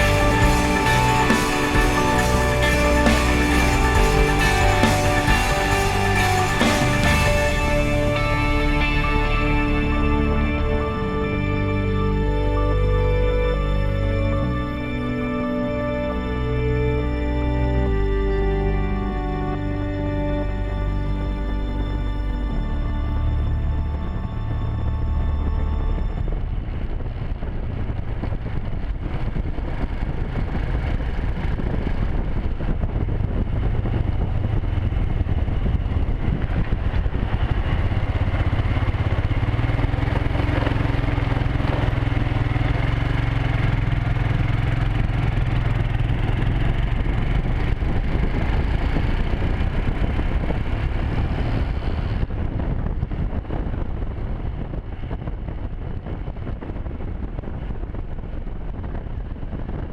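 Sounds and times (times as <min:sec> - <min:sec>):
motorcycle engine running: 0:00.0 - 0:18.4, 0:19.5 - 0:59.9
wind rushing over microphone: 0:19.0 - 0:59.9.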